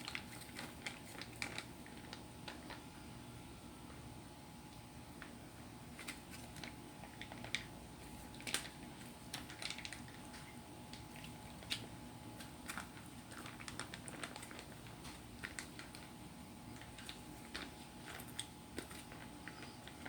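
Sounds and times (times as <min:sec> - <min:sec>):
faint steady hum: 0:00.0 - 0:20.0
close eating sounds: 0:05.9 - 0:20.0.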